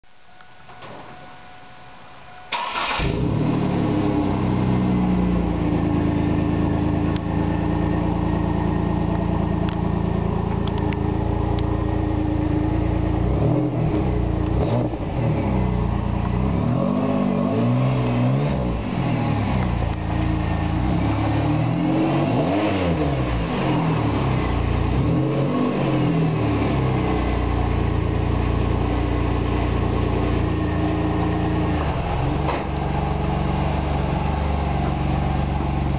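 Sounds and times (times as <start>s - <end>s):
car engine starting and idling: 0.7s - 35.9s
car engine revving: 2.5s - 35.9s.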